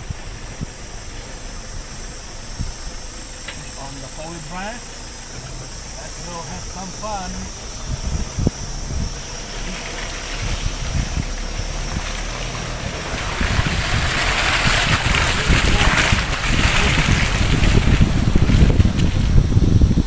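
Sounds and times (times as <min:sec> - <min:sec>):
car rumbling with knocks and bumps: 0:00.0 - 0:20.0
rushing wind and tyre noise: 0:00.0 - 0:20.0.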